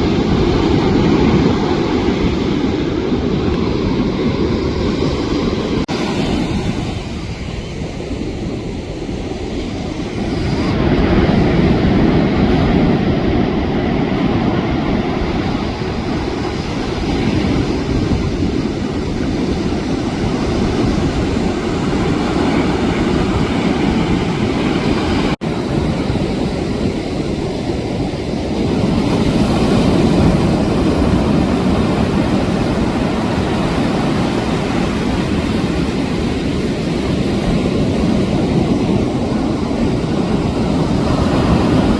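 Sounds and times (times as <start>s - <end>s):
surf rushing: 0.0s - 41.9s
wind buffeting microphone: 0.0s - 41.9s.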